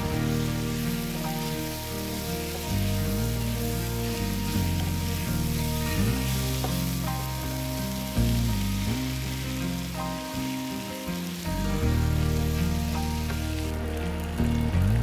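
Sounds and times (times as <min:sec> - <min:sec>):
background music: 0:00.0 - 0:15.0
food sizzling: 0:00.0 - 0:15.0.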